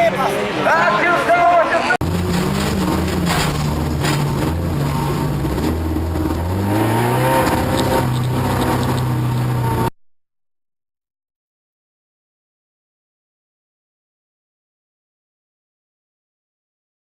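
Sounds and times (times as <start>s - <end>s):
racing car engine running hard: 2.0s - 9.9s.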